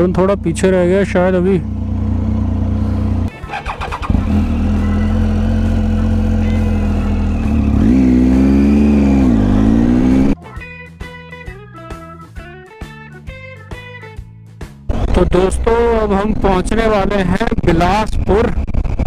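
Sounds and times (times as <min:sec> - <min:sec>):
motorcycle engine running: 0:00.0 - 0:10.4
guitar music: 0:02.9 - 0:16.2.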